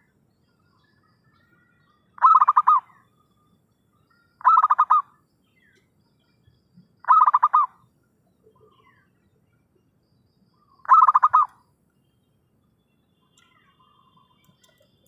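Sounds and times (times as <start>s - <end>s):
dove cooing: 2.2s - 3.0s, 4.4s - 5.1s, 7.0s - 7.7s, 10.9s - 11.6s.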